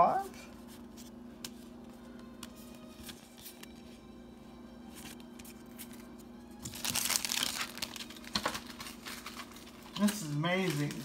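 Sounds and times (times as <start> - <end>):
faint steady hum: 0.0 - 11.0
cards and packaging rustling: 0.4 - 4.1, 4.8 - 11.0
foil pack tearing and crinkling: 6.6 - 11.0.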